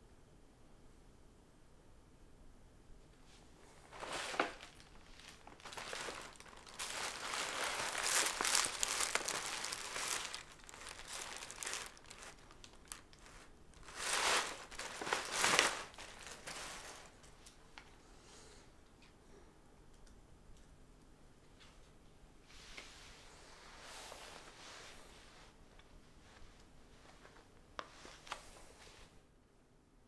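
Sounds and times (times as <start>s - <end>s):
wrapping paper crinkling and tearing: 3.7s - 17.3s.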